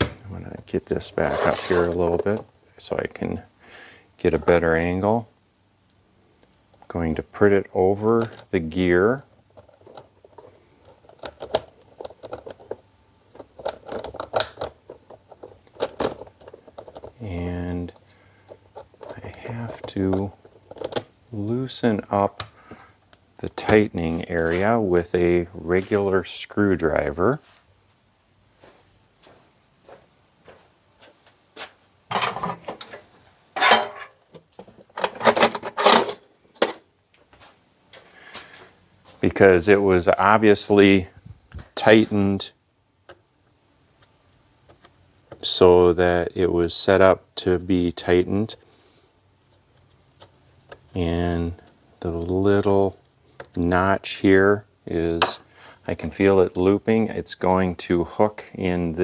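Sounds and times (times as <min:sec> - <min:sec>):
plastic and metal parts rattling: 0:09.5 - 0:17.2, 0:17.9 - 0:21.1, 0:32.1 - 0:36.8.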